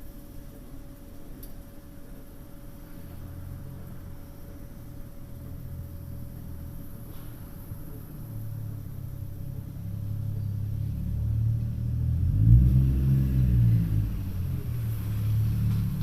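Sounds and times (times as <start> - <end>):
passing vehicle rumble: 6.7 - 16.0.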